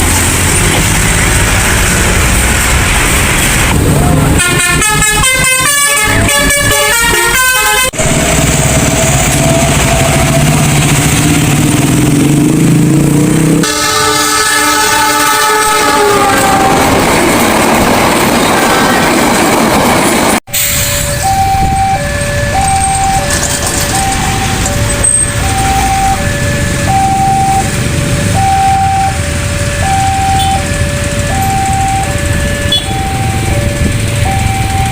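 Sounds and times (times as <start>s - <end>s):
multi-note horn calls: 4.1s - 8.1s, 13.6s - 17.0s, 32.6s - 33.1s
long held horn blast: 4.3s - 8.2s, 13.6s - 17.0s, 32.3s - 33.1s
horn sliding down in pitch: 13.6s - 17.0s, 20.5s - 34.9s.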